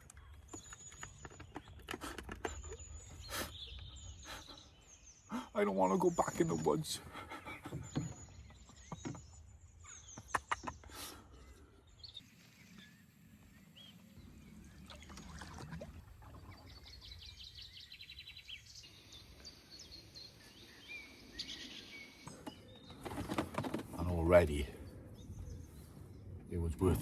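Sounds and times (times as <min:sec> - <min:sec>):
faint bird chirps: 0:00.0 - 0:23.3
quiet water: 0:00.0 - 0:27.0
paddle knocking against canoe: 0:07.5 - 0:09.4.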